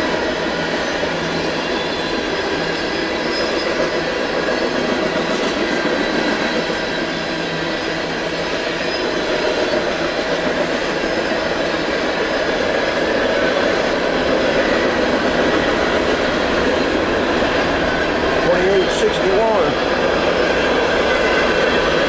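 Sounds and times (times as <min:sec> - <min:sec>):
wheel squeal: 0:00.0 - 0:19.0
steel wheels rumbling on rail: 0:00.0 - 0:22.0.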